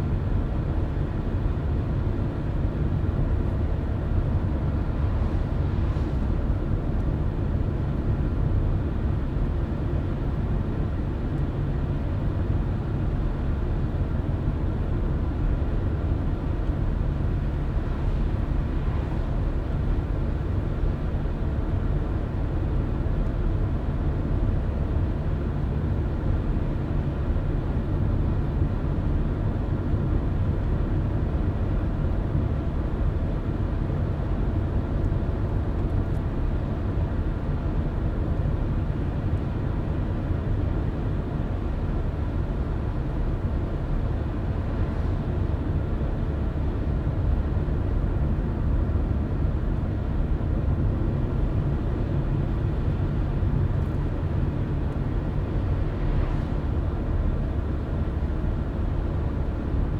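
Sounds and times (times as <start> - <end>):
car driving: 51.6 - 59.5.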